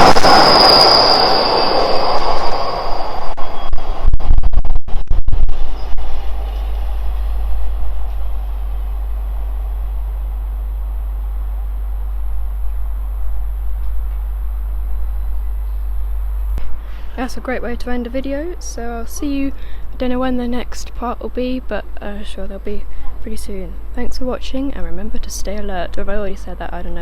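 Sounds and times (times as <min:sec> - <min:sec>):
freight train rumbling past: 0:00.0 - 0:04.0, 0:05.6 - 0:14.3.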